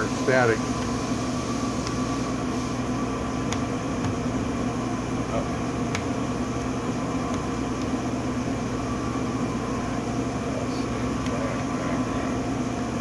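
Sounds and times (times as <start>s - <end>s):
lathe humming: 0.0s - 13.0s.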